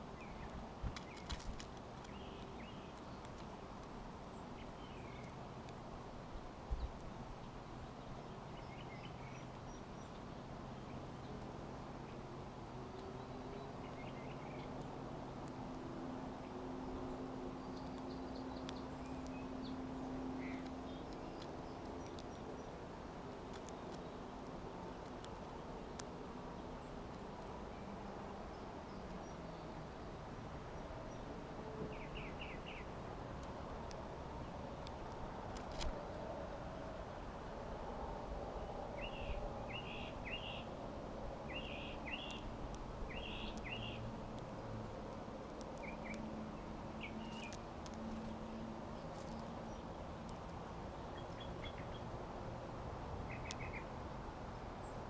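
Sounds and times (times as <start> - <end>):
faint songbird chirps: 0.0 - 5.4, 6.3 - 11.4, 12.9 - 15.0, 16.3 - 22.8, 26.5 - 33.0, 37.9 - 40.8, 41.4 - 44.7, 45.5 - 52.2, 53.2 - 54.0
faint sharp clicks: 0.4 - 4.0, 5.1 - 5.8, 17.7 - 19.5, 20.4 - 22.8, 23.5 - 26.1, 34.8 - 36.4, 41.6 - 46.4, 47.0 - 52.0, 53.3 - 53.8.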